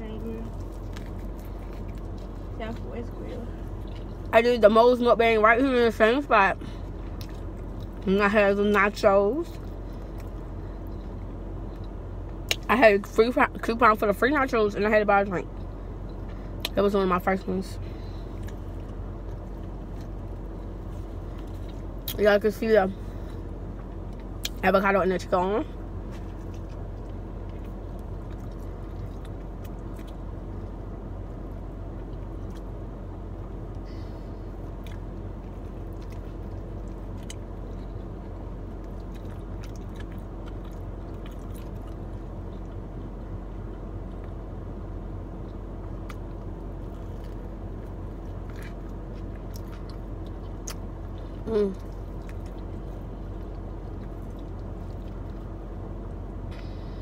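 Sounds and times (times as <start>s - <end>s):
car interior hum: 0.0s - 57.0s
person chewing food: 0.4s - 2.8s, 3.6s - 4.3s, 6.8s - 8.0s, 9.5s - 12.6s, 18.2s - 22.2s, 26.0s - 30.8s, 33.4s - 43.3s, 45.4s - 55.6s.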